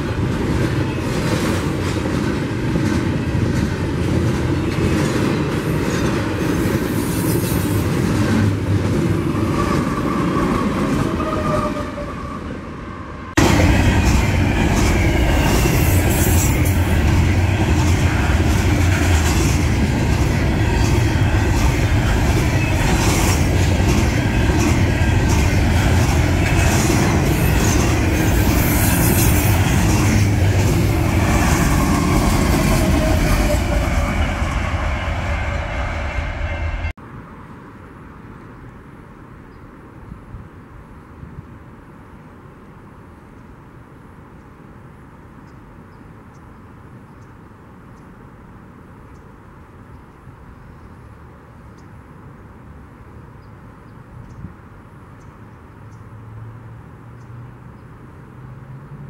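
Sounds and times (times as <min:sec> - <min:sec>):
train rumbling past: 0:00.0 - 0:37.1.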